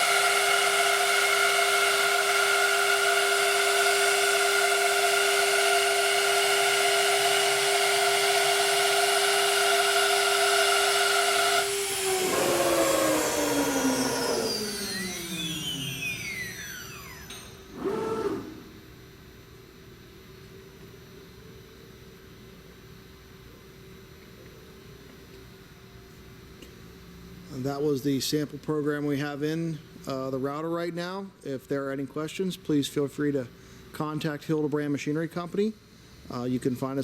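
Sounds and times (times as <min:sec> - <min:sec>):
router spindle whining: 0:00.0 - 0:18.8.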